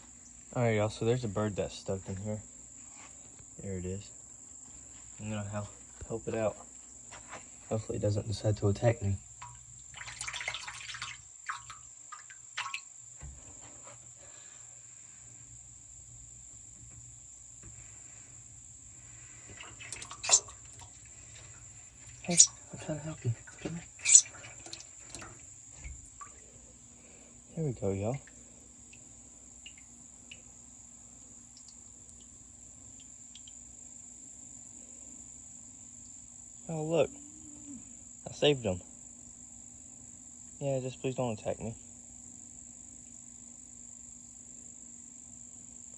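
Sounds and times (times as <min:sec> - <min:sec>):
crickets trilling: 0:00.0 - 0:45.9
faint knocks and rustles: 0:04.2 - 0:07.8, 0:13.1 - 0:14.5, 0:16.6 - 0:18.4, 0:19.2 - 0:26.6.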